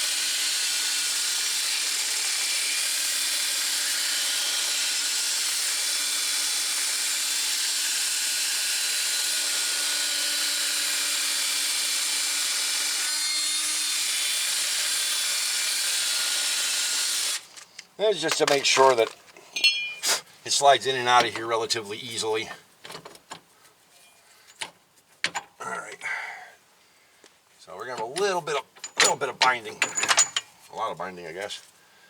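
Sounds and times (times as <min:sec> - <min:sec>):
power tool grinding rust: 0:00.0 - 0:17.5, 0:27.9 - 0:30.4.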